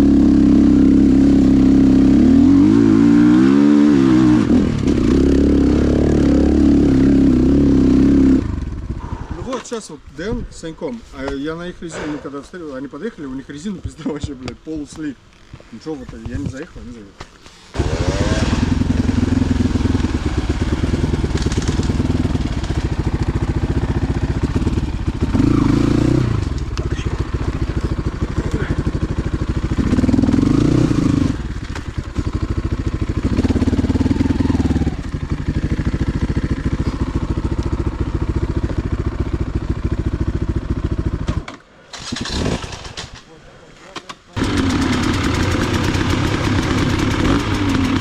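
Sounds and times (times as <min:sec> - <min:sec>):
motorcycle engine revving: 0:00.0 - 0:09.4, 0:17.7 - 0:41.4, 0:42.0 - 0:43.2, 0:44.4 - 0:48.0.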